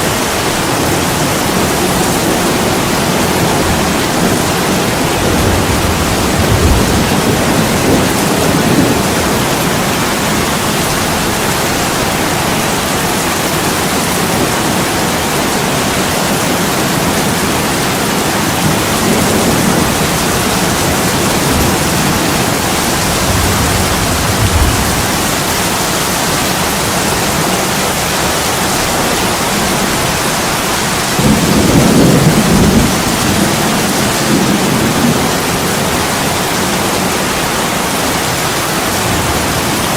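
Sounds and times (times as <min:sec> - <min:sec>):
heavy rain on a window: 0:00.0 - 0:39.9
thunder rolling: 0:00.7 - 0:13.0, 0:16.5 - 0:27.4, 0:30.9 - 0:37.4.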